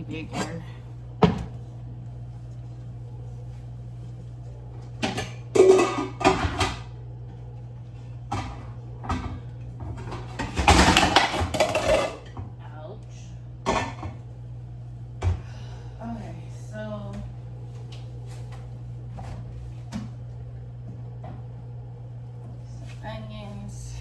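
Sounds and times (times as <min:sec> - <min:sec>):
metal pots and pans clanking: 0:05.1 - 0:06.8, 0:10.0 - 0:12.3.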